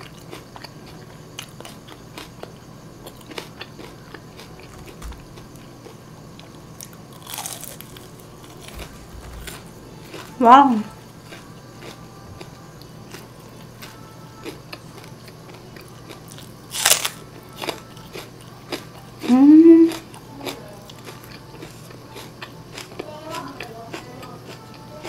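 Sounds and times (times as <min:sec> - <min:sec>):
crunchy chewing: 0:00.0 - 0:25.0
person humming mmm: 0:19.2 - 0:22.5.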